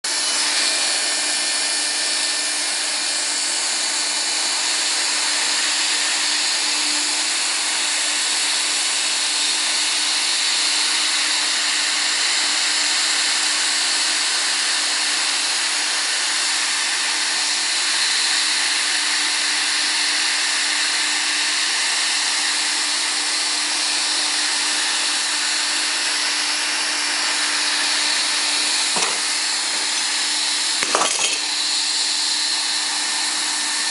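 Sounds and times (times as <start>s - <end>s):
hot-air welding gun blower hissing: 25.8s - 30.8s.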